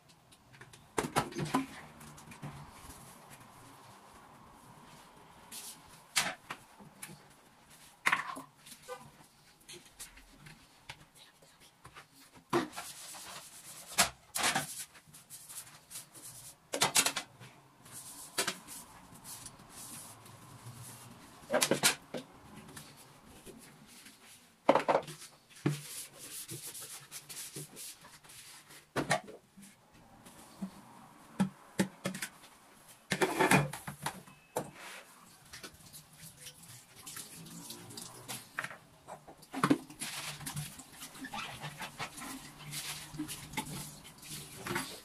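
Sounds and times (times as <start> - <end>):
objects knocking and clattering: 0.4 - 2.7, 16.7 - 17.5, 21.5 - 22.8, 24.6 - 25.8, 30.6 - 32.5, 33.1 - 34.7.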